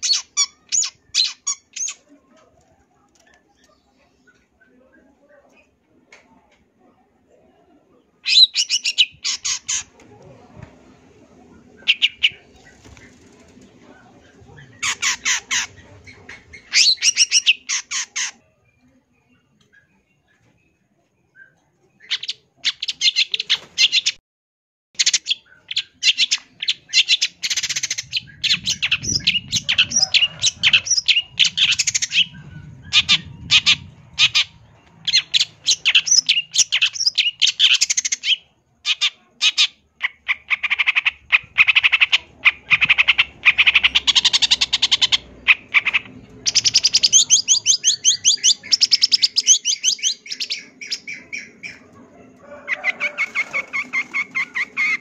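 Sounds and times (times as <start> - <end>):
shrike singing chirps and squawks: 0.0 - 2.0, 8.2 - 9.9, 11.8 - 13.2, 14.2 - 18.4, 21.4 - 24.2, 25.0 - 51.9.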